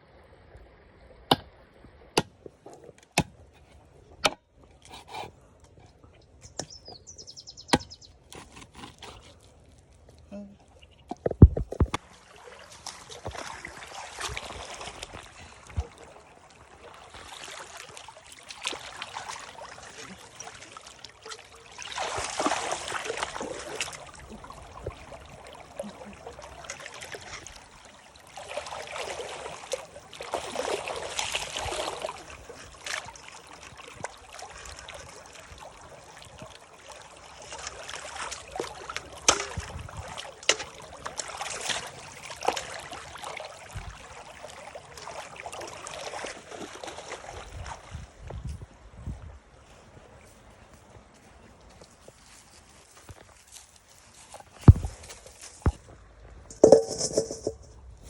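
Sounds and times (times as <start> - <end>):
water trickling and splashing: 0.0 - 58.0
clicks and knocks: 56.5 - 57.8.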